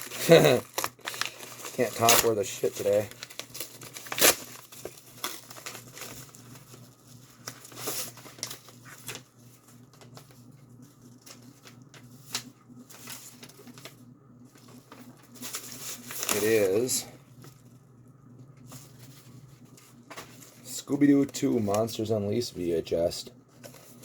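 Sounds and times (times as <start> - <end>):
packaging crinkling and tearing: 0.0 - 17.6.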